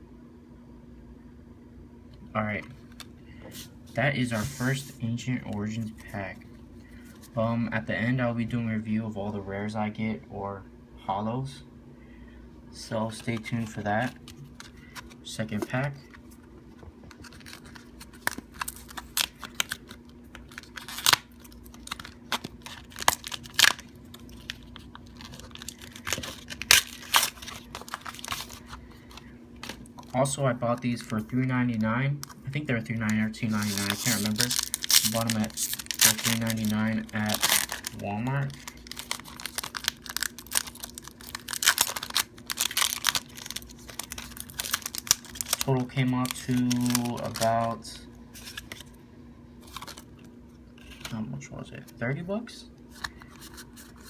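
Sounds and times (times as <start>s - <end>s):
foil wrapper tearing and crinkling: 17.1s - 30.2s, 33.0s - 47.8s, 49.6s - 50.1s.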